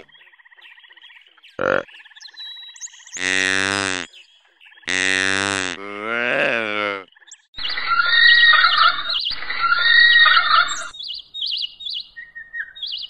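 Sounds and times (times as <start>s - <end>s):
deer bleating calls: 3.2s - 4.1s, 4.9s - 7.0s.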